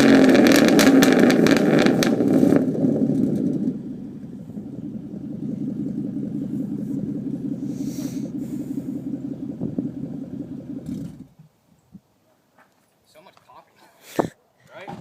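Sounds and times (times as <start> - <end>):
car engine idling with crackles: 0.0 - 11.5.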